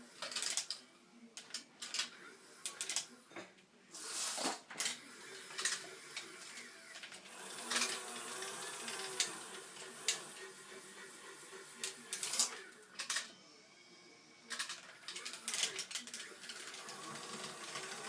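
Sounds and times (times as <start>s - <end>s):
small electric motors whining: 5.1s - 12.6s, 14.5s - 18.0s.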